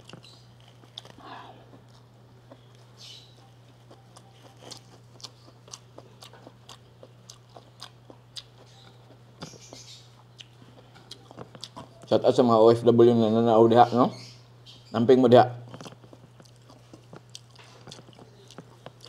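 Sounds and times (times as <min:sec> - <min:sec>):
chewing with soft crunches: 0:00.0 - 0:12.3, 0:15.6 - 0:19.0
faint low hum: 0:00.0 - 0:19.0.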